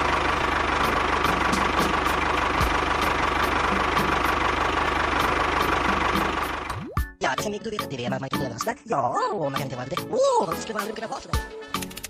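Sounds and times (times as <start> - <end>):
engine idling with knock: 0.0 - 6.8.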